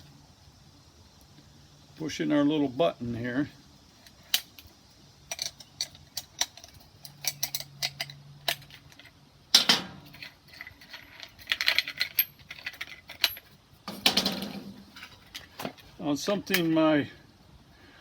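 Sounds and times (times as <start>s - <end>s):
metal tools clinking: 5.3s - 16.8s
metal clunk: 9.6s - 10.4s, 13.2s - 15.8s.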